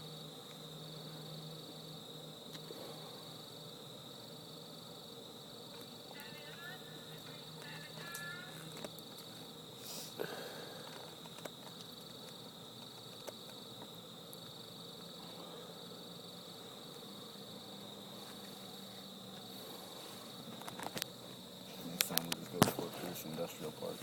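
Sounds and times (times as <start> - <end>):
crickets trilling: 0.0 - 24.0
faint low hum: 0.0 - 24.0
scattered clicks: 5.8 - 9.3.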